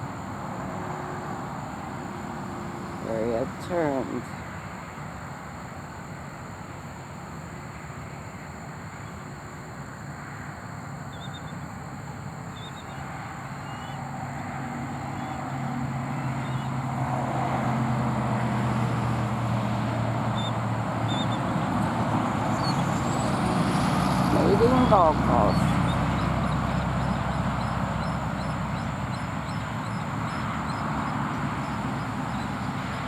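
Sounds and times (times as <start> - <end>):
vehicle engine hum: 0.0 - 6.9, 11.2 - 33.0
faint high bird chirps: 11.1 - 11.6, 12.5 - 13.0.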